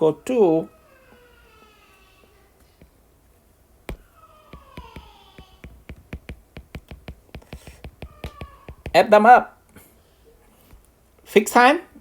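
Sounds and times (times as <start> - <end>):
light clicks and taps: 3.9 - 9.0.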